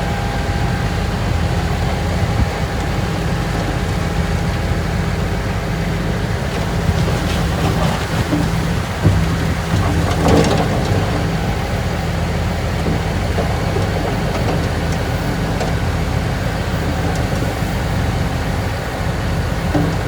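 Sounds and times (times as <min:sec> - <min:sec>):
diesel engine running under load: 0:00.0 - 0:20.0.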